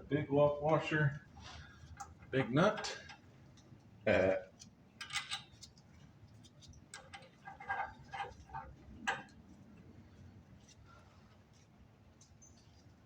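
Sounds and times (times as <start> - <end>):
small metal hardware clinking: 5.0 - 5.7.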